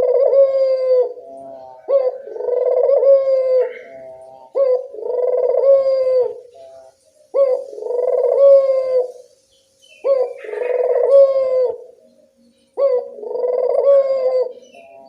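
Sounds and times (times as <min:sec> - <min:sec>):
dove cooing: 0:00.0 - 0:09.3, 0:09.9 - 0:15.0.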